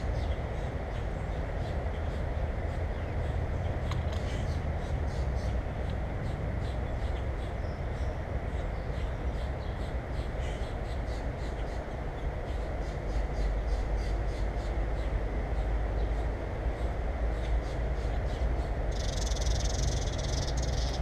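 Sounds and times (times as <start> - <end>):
birds chirping: 6.2 - 21.0.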